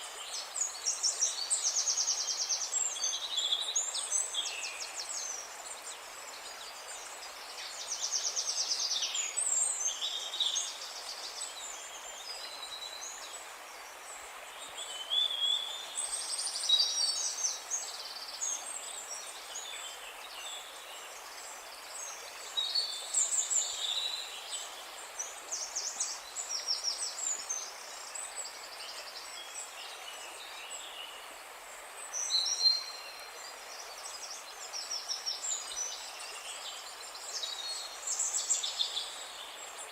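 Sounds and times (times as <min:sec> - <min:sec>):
steady background hiss: 0:00.0 - 0:39.9.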